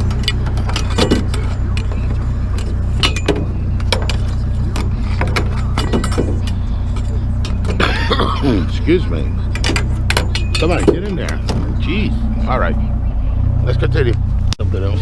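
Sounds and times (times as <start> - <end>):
scrap metal clanking: 0.0 - 11.9
truck engine idling: 0.0 - 15.0.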